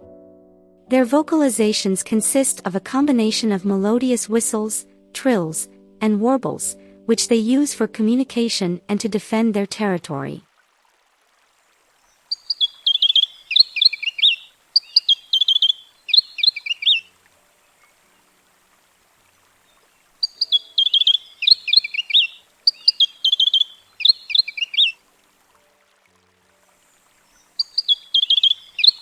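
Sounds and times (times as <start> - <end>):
bird singing whistled notes: 12.3 - 17.1, 19.6 - 25.0, 27.3 - 29.0.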